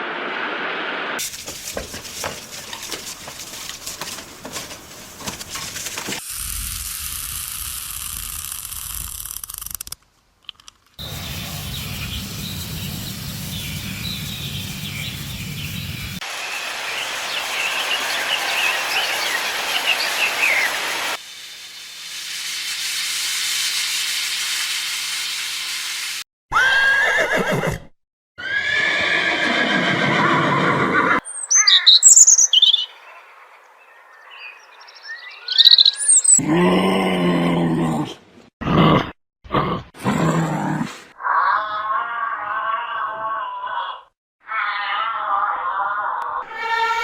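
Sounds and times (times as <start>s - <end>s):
high bird-like chirps: 11.0s - 21.0s, 31.2s - 36.4s
steady rushing noise: 11.0s - 21.6s.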